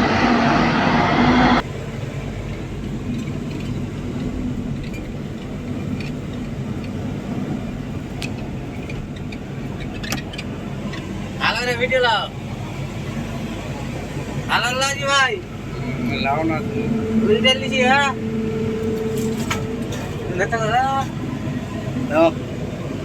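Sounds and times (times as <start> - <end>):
harsh loud noise: 0.0 - 1.6
heavy machinery diesel engine: 0.0 - 23.0.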